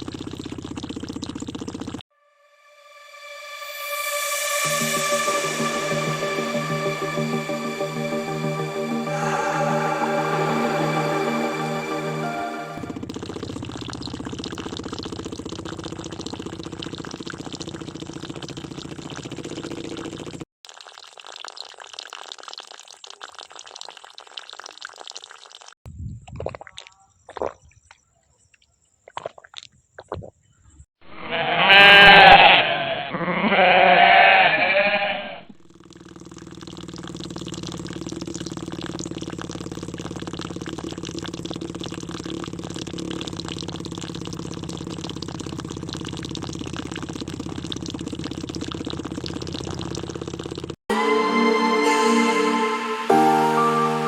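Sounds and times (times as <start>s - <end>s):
small pump motor humming: 0.0s - 2.0s, 12.8s - 20.4s, 35.7s - 50.8s
water pouring and splashing: 13.0s - 27.6s, 36.4s - 50.8s.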